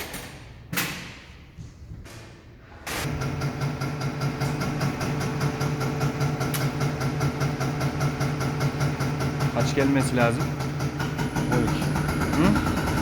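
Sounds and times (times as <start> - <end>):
machine humming: 3.1 - 13.0.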